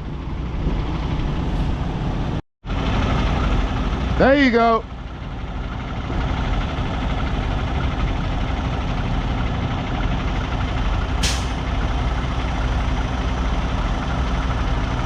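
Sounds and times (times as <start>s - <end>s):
diesel truck engine idling: 0.0s - 15.0s
air brake hiss: 11.2s - 11.7s.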